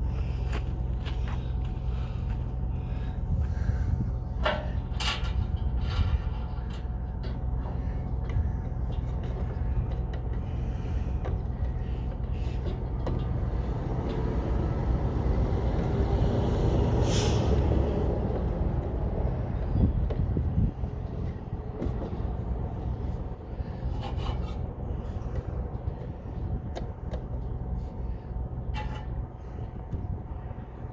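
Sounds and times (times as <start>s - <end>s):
vehicle engine idling: 0.0s - 30.9s.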